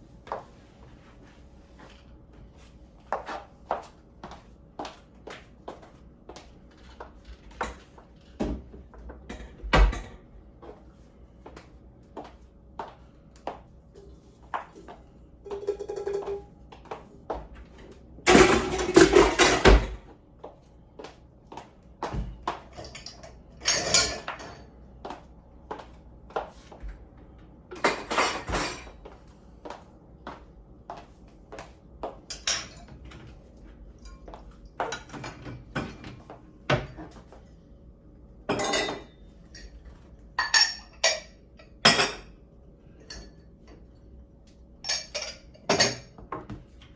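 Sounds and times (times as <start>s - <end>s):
dishes and cutlery clinking: 15.4s - 16.5s, 22.7s - 24.7s, 27.8s - 29.0s, 32.3s - 33.2s, 38.5s - 42.3s, 44.8s - 46.6s.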